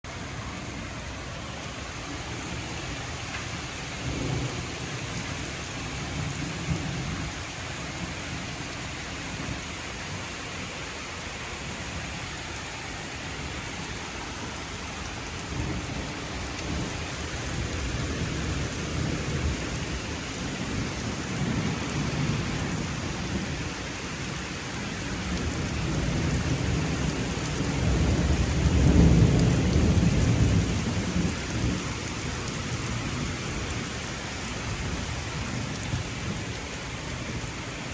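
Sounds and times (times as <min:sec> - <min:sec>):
heavy rain: 0:00.0 - 0:37.9
thunder rumbling: 0:25.1 - 0:33.9.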